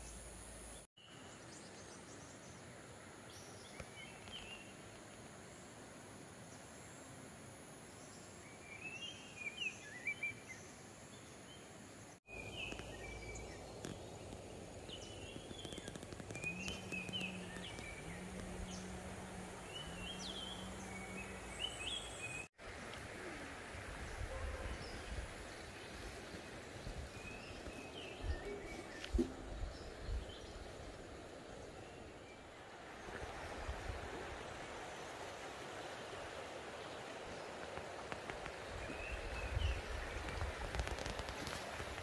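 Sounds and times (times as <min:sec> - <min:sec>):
steady background hiss: 0:00.0 - 0:42.0
birds chirping: 0:12.2 - 0:22.5, 0:23.2 - 0:32.8
low steady hum: 0:16.3 - 0:23.6.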